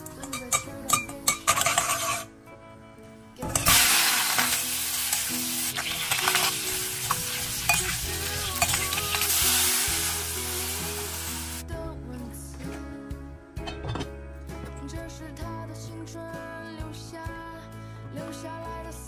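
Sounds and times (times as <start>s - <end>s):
spatula stirring in wok: 0.2s - 2.3s, 3.6s - 9.4s
meat frying with loud sizzle: 3.4s - 11.6s
water hissing in hot wok: 3.6s - 11.6s.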